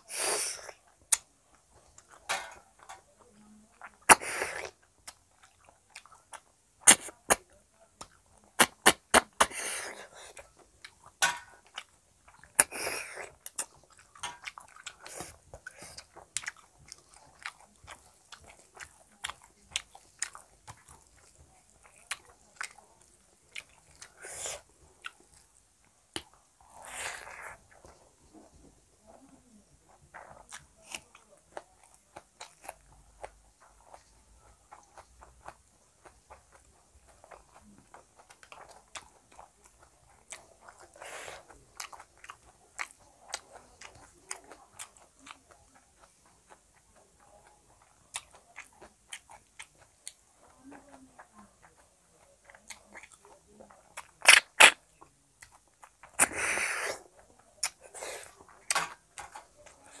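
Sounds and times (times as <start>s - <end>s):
close chewing with mouth clicks: 0.0s - 60.0s.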